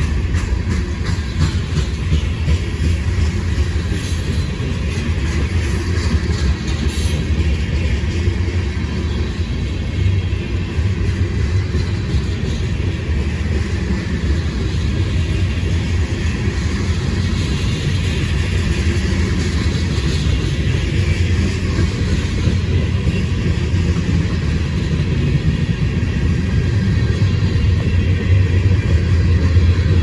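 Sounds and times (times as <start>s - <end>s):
train rumbling past: 0.0s - 30.0s.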